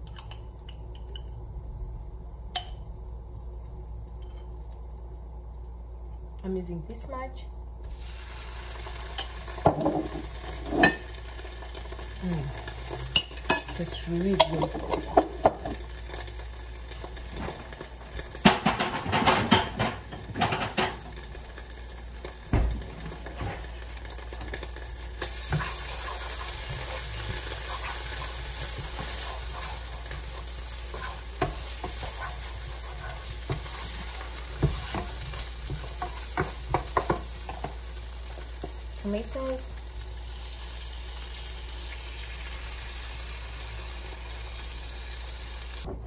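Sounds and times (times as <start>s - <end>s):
food sizzling in a pot: 7.8s - 45.9s
spoon scraping a pot: 25.4s - 37.7s.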